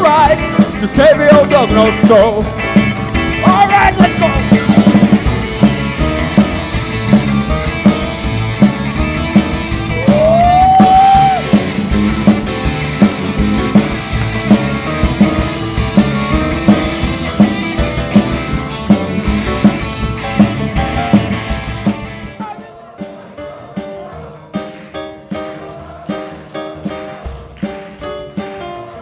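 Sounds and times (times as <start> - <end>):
electric guitar: 0.0 - 22.4
bass guitar: 0.0 - 22.5
picked guitar notes: 0.0 - 22.7
drum kit beat: 0.0 - 29.0.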